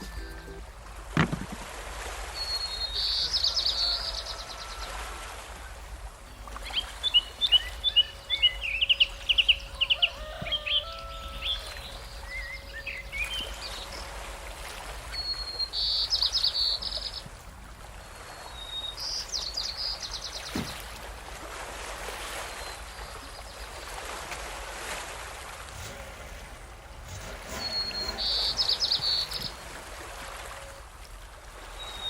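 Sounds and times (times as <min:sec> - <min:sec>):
low background hum: 0:00.0 - 0:32.0
birds chirping and trilling: 0:02.4 - 0:21.2, 0:25.6 - 0:30.8.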